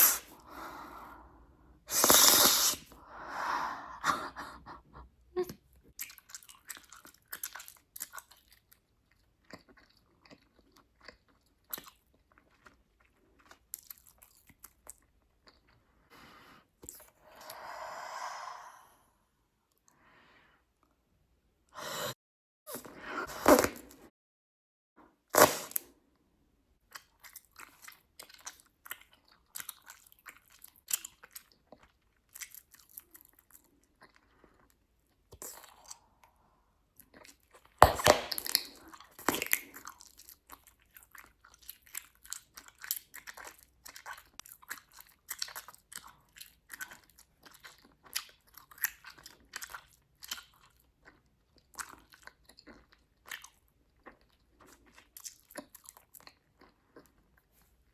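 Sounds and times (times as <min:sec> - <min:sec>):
bubblegum bubbles popping: 0:37.8 - 0:39.6.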